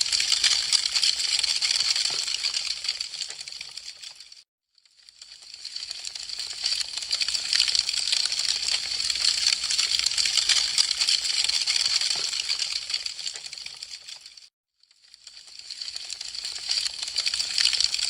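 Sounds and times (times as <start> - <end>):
wood fire crackling: 0.0 - 4.4, 5.2 - 14.4, 15.2 - 18.0.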